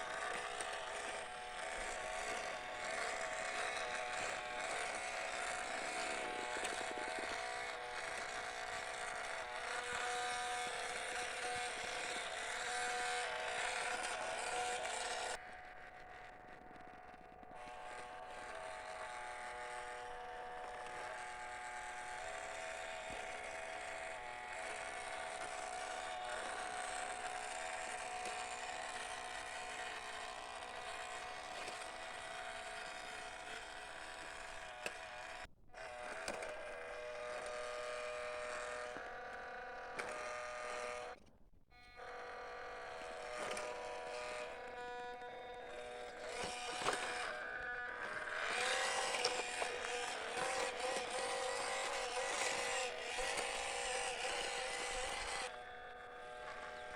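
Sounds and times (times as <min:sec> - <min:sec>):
rc truck motor whining: 0:00.0 - 0:56.9.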